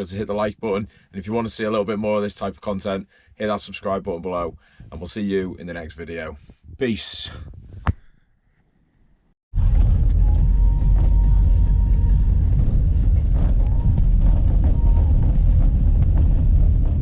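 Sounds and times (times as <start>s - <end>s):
vehicle rumble: 9.6s - 17.0s.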